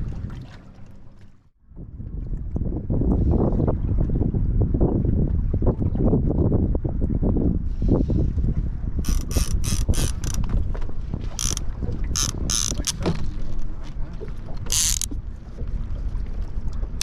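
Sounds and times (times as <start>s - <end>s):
low rumble of wind and boat: 0.0s - 17.0s
fishing reel clicking: 9.0s - 10.5s, 11.4s - 11.6s, 12.2s - 13.0s, 14.6s - 15.1s.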